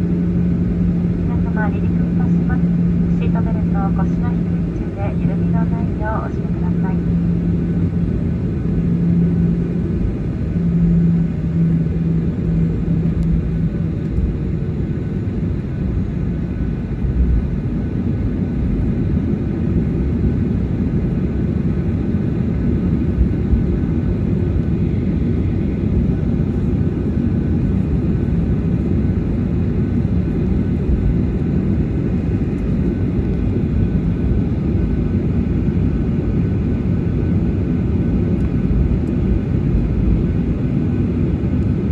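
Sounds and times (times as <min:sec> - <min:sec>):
low droning tone: 0:00.0 - 0:14.6
jet engines low rumble: 0:00.0 - 0:41.9.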